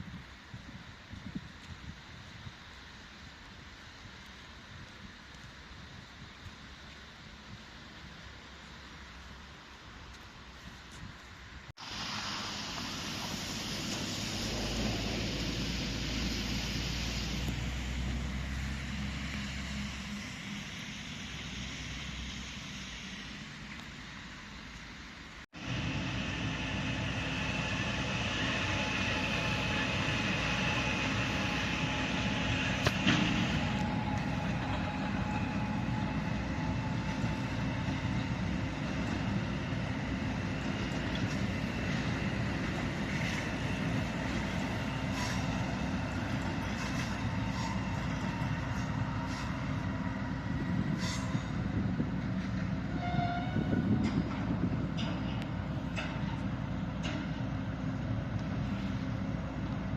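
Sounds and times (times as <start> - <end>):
train wheels rumbling on rail: 0.0 - 59.9
steady high whine: 19.7 - 52.8.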